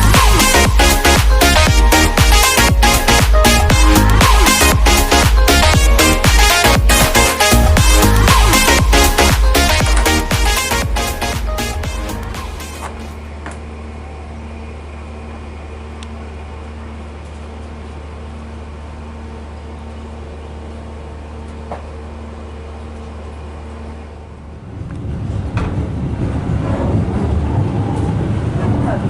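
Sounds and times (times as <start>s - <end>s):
low mechanical hum in train: 11.2s - 29.0s
train rumble with clatter: 24.1s - 29.0s.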